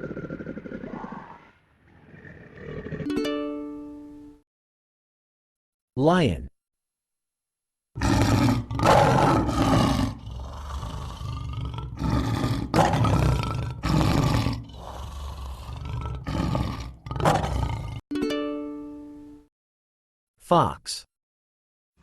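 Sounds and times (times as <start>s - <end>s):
lion roaring: 0.0s - 3.1s, 8.0s - 18.0s
plucked musical note: 3.1s - 4.2s, 18.1s - 19.4s.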